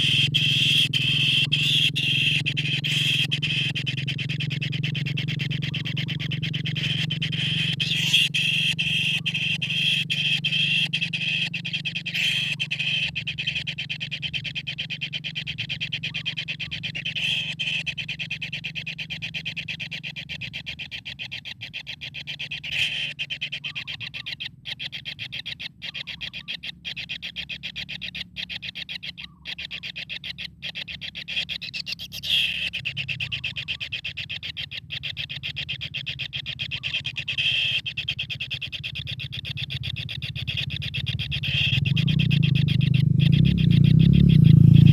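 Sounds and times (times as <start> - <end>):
steady low hum: 0.0 - 25.8.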